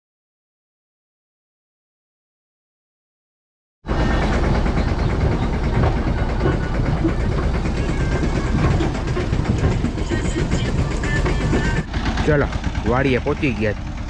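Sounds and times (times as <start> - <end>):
tractor engine running: 3.9 - 14.0
trolley rattling: 3.9 - 14.0.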